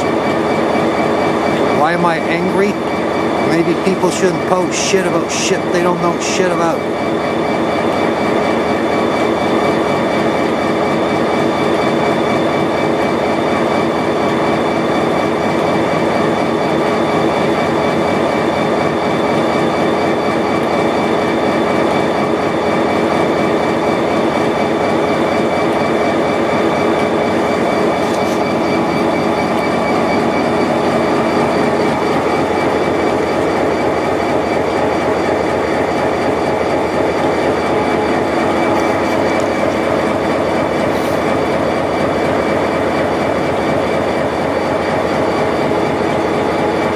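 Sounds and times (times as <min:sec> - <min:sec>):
train wheels rumbling on rail: 0:00.0 - 0:46.9
high ringing tones: 0:24.5 - 0:35.1.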